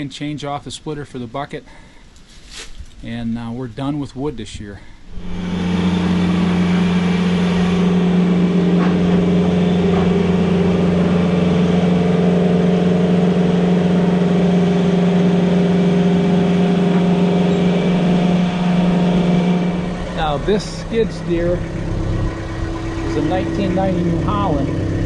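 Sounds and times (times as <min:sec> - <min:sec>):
skid steer engine running: 0:05.1 - 0:25.0.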